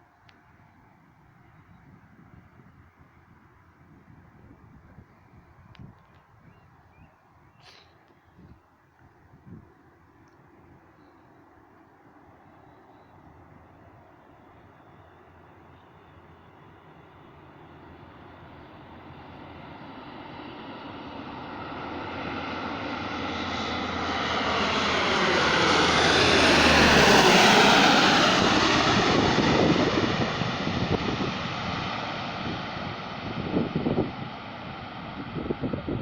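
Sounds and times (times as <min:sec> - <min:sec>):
turboprop aircraft passing: 0:09.9 - 0:36.0.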